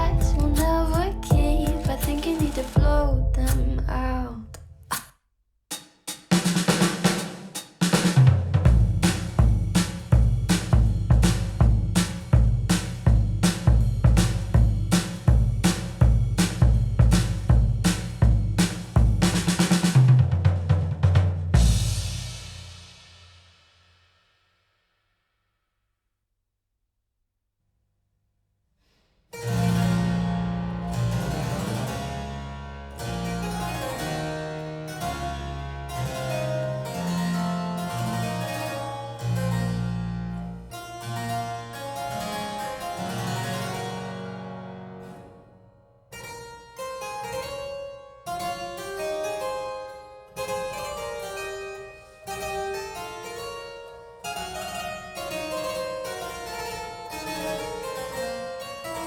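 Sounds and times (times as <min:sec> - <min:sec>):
low bass notes: 0:00.0 - 0:04.8, 0:08.7 - 0:19.5, 0:29.5 - 0:38.4.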